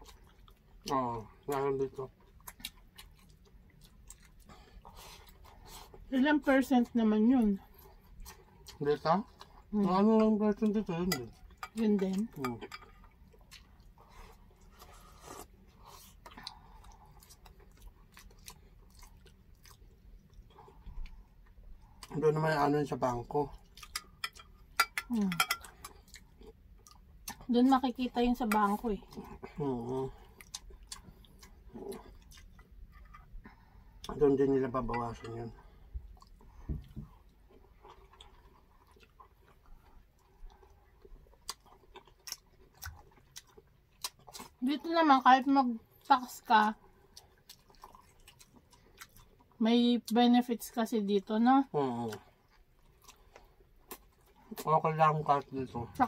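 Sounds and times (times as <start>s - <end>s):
people chewing: 0.0s - 44.9s, 45.9s - 50.2s, 51.8s - 56.0s.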